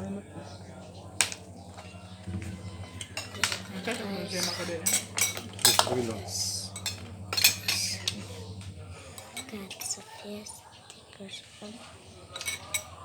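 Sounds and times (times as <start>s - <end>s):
steady low hum: 0.0s - 13.0s
cutlery clinking on plates: 1.2s - 10.1s, 12.2s - 13.0s.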